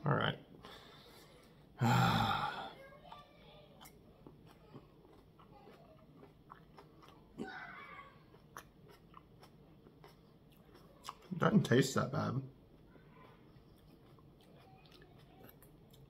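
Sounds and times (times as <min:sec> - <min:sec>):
man breathy vocal noise: 0:01.8 - 0:02.8
mouth clicks chewing: 0:03.8 - 0:07.4, 0:08.3 - 0:11.4, 0:12.8 - 0:16.0.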